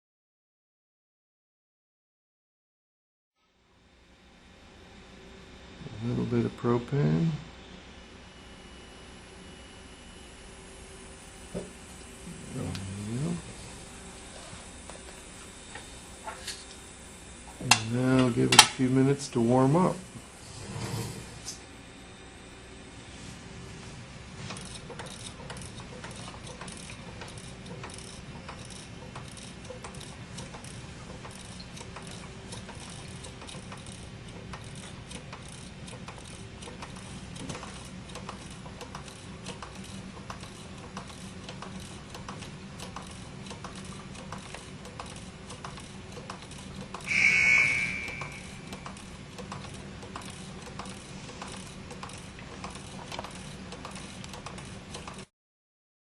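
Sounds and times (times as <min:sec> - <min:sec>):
engine mechanism clicking: 0:24.5 - 0:47.1, 0:48.7 - 0:55.3
high-pitched tone: 0:47.1 - 0:48.8
low hum: 0:47.1 - 0:48.9.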